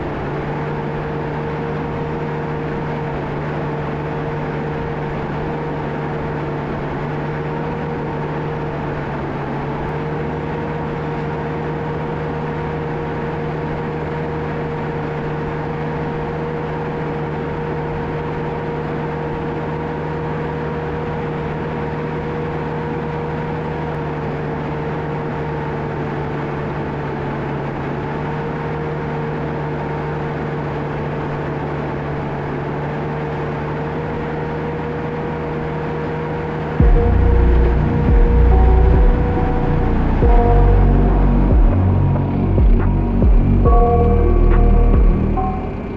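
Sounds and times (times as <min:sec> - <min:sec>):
bulldozer diesel drone: 0:00.0 - 0:45.9
high whine: 0:34.6 - 0:45.9.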